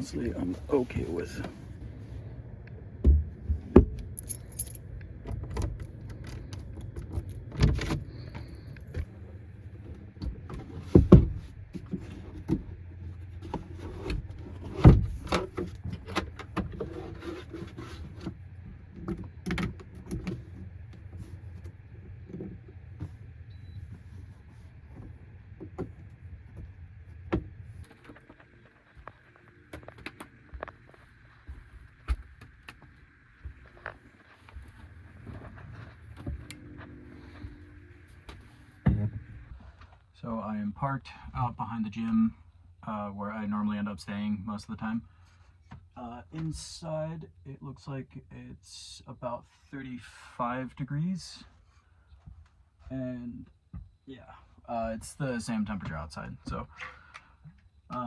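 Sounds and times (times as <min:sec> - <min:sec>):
steady low hum: 0:00.0 - 0:58.0
keys jangling: 0:04.2 - 0:04.9.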